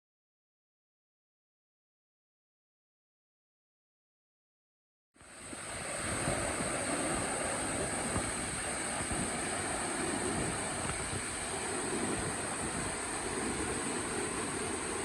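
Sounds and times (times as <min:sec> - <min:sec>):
waterfall rushing: 0:05.2 - 0:15.0.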